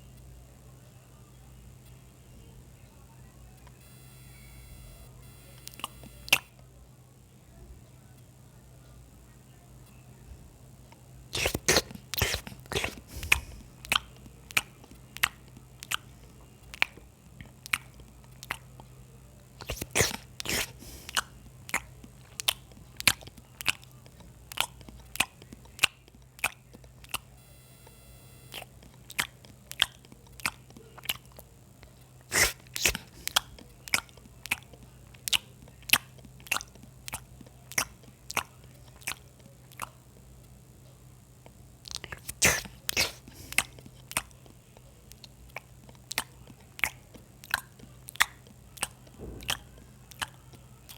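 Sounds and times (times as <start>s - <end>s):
crunchy bites: 4.4s - 6.5s, 11.4s - 16.0s, 19.6s - 27.2s, 32.3s - 34.7s, 41.8s - 44.3s, 45.2s - 50.9s
wet chewing: 4.9s - 6.5s, 11.3s - 18.9s, 19.6s - 27.4s, 28.5s - 40.3s, 41.4s - 50.9s.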